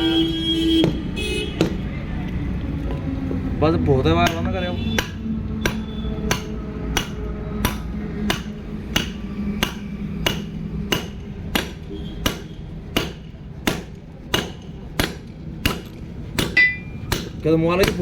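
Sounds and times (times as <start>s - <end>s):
hammer tapping on metal: 4.2s - 18.0s
steady low hum: 12.6s - 17.4s.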